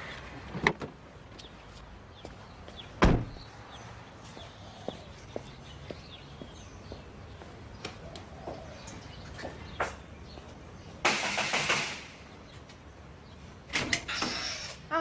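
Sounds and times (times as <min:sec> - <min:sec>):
birds chirping: 0:01.3 - 0:11.4, 0:12.1 - 0:15.0
car door shutting: 0:03.0 - 0:03.4
faint footsteps: 0:03.7 - 0:10.8.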